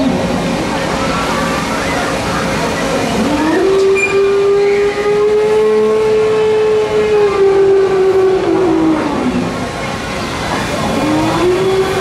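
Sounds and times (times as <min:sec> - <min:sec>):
steady machine noise: 0:00.0 - 0:12.0
long horn-like trumpet call: 0:03.3 - 0:09.2.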